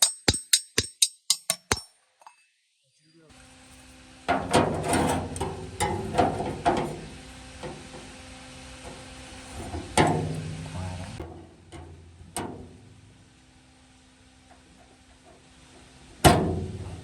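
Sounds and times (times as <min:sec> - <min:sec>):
sharp knocks and clanks: 0:00.0 - 0:02.4, 0:04.3 - 0:08.1, 0:09.6 - 0:13.0, 0:16.2 - 0:17.0
steady low hum: 0:03.2 - 0:17.0.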